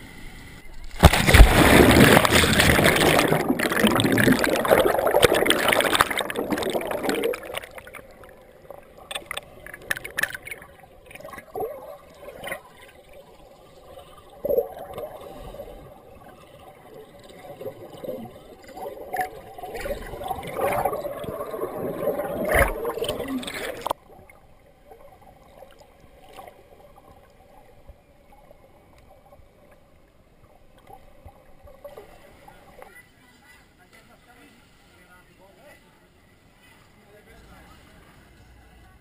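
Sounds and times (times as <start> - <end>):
water gurgling: 0.7 - 33.3
sea water splashing: 0.8 - 27.9.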